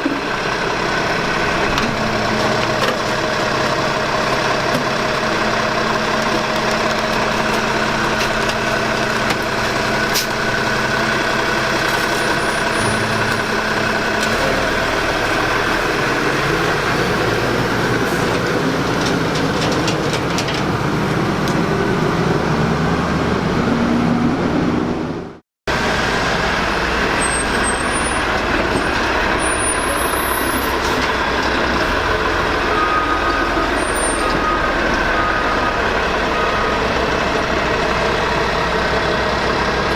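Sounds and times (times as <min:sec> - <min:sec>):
garbage truck engine running: 0:00.0 - 0:39.9.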